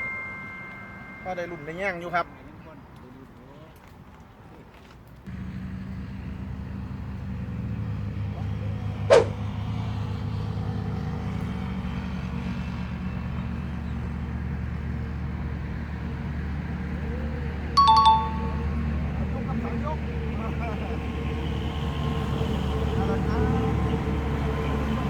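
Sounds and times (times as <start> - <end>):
engine running: 5.3 - 17.6
sharp knock: 9.1 - 9.4.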